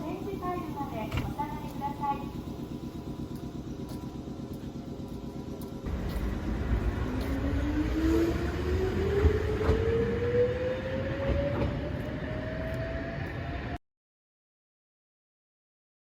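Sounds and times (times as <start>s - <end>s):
electric train rumbling: 0.0s - 13.8s
rising motor whine: 5.9s - 13.8s.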